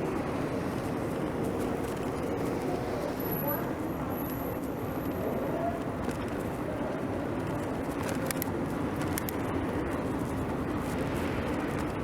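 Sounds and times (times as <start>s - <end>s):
bicycle tyre noise: 0.0s - 12.0s
traffic: 0.0s - 12.0s
wind noise: 0.0s - 12.0s.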